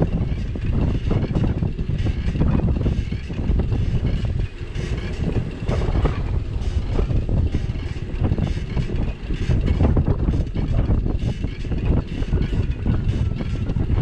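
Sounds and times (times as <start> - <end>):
bike rattles and knocks: 0.0 - 14.0
wind buffeting microphone: 0.0 - 14.0.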